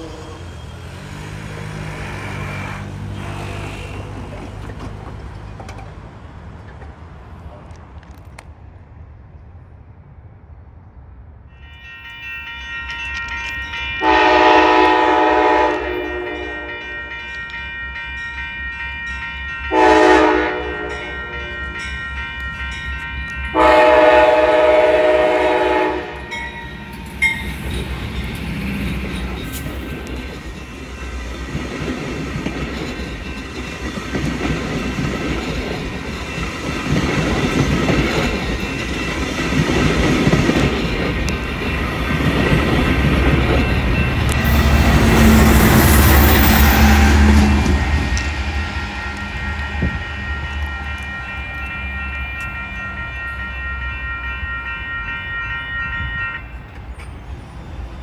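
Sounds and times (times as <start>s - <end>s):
train wheels rumbling and clacking: 0.0s - 8.8s, 12.2s - 54.8s
crossing bell ringing: 11.5s - 58.0s
locomotive horn blasts: 11.6s - 18.2s, 19.0s - 26.6s, 44.4s - 56.6s.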